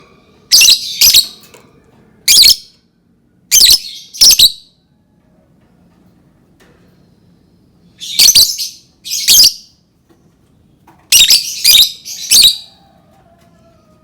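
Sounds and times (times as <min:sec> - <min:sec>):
lovebird shrill calls: 0:00.5 - 0:01.3, 0:03.5 - 0:04.6, 0:08.0 - 0:09.6, 0:11.1 - 0:12.7.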